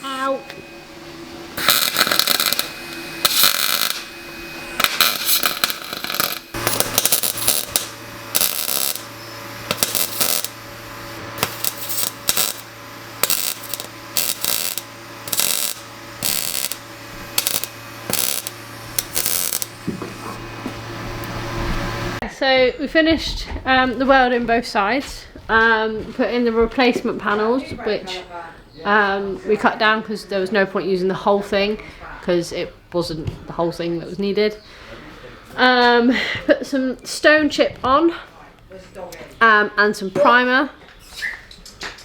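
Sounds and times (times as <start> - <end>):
welding arc noise: 0.0 - 22.2
steady low hum: 0.0 - 25.4.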